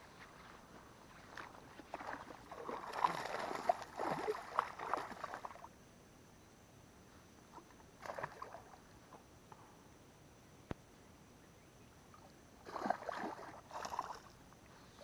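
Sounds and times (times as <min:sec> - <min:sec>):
fish splashing water: 0:01.9 - 0:05.6, 0:12.6 - 0:14.3.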